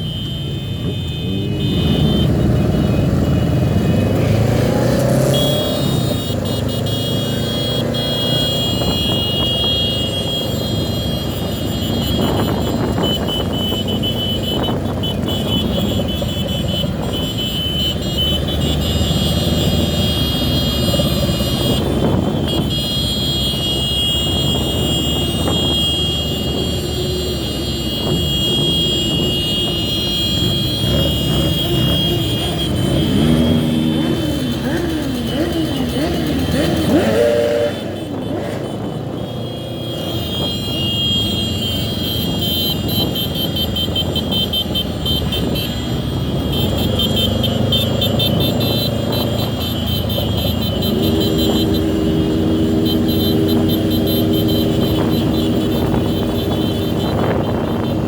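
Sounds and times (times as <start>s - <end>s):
motorcycle engines and road noise: 0.0s - 58.0s
motorcycle engine revving: 1.2s - 58.0s.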